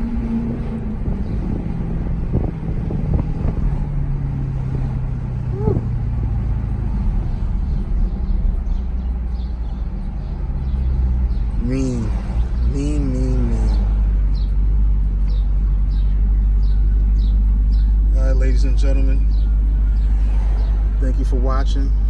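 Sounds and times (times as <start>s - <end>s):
car engine droning: 0.0s - 22.0s.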